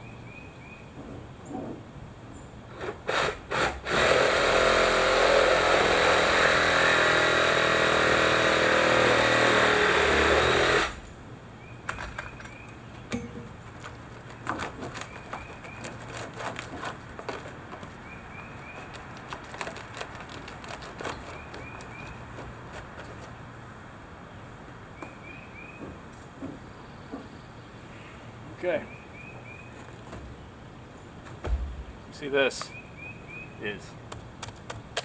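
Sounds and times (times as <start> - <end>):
birds chirping: 0.0 - 2.8, 11.0 - 35.0
reciprocating saw cutting wood: 2.7 - 11.0, 14.2 - 23.4
light knocks: 11.9 - 18.1, 25.0 - 27.4, 31.2 - 32.0.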